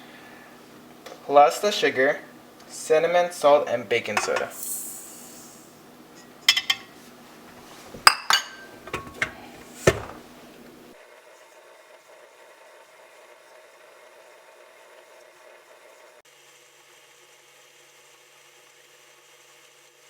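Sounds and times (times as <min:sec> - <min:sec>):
faint room hum: 0:00.0 - 0:16.2
utensils clinking against dishes: 0:04.1 - 0:04.8, 0:06.1 - 0:07.0, 0:08.0 - 0:10.2.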